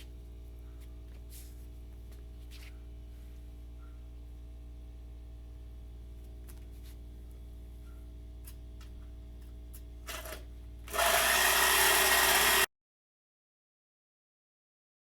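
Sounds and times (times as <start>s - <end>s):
low steady hum: 0.0s - 11.0s
power tool running loudly: 10.1s - 12.7s.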